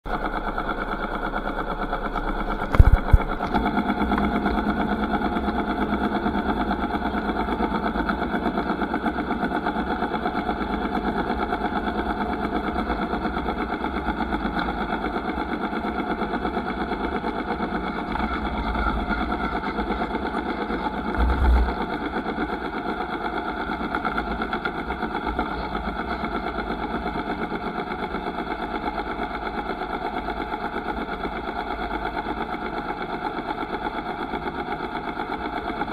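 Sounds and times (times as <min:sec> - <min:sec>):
motorcycle engine running: 0:00.1 - 0:35.9.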